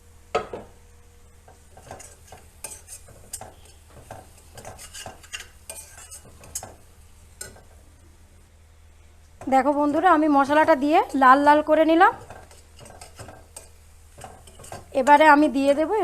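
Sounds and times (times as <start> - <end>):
utensil scraping in a pan: 1.5 - 7.8, 9.4 - 16.0.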